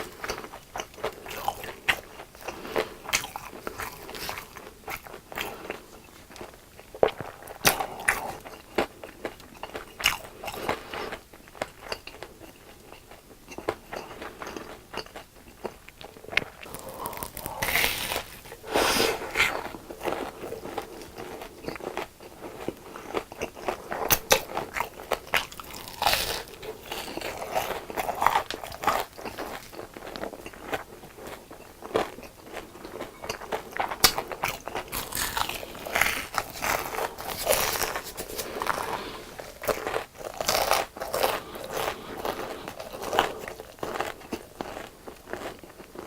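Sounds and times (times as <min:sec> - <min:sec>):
crunching crispy food: 0:16.0 - 0:46.0.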